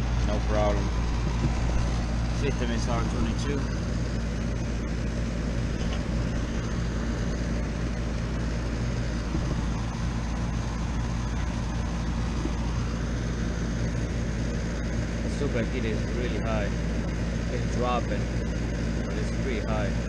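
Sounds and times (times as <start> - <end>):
air conditioner unit humming: 0.0 - 20.0.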